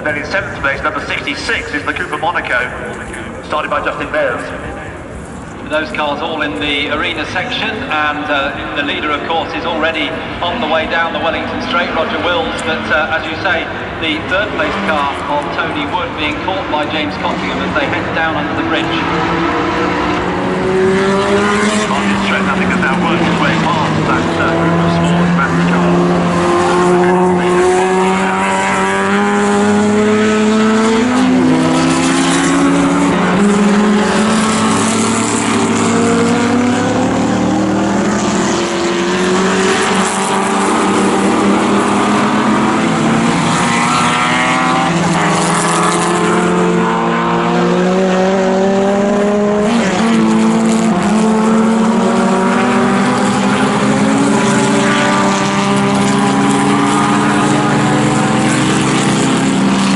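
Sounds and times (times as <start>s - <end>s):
racing car engines at full throttle: 0.0s - 59.9s.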